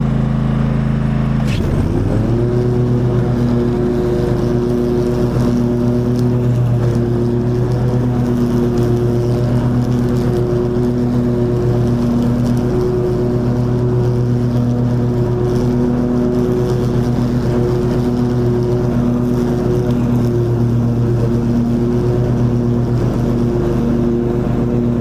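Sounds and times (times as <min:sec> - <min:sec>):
mower engine running: 0:00.0 - 0:25.0
high-pitched whine: 0:01.4 - 0:03.6.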